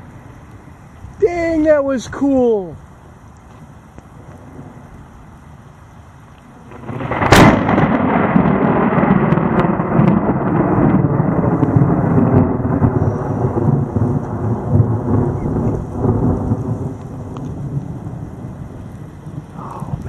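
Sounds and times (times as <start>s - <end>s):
rain falling: 0.0s - 20.0s
rolling thunder: 4.1s - 5.1s, 6.6s - 20.0s.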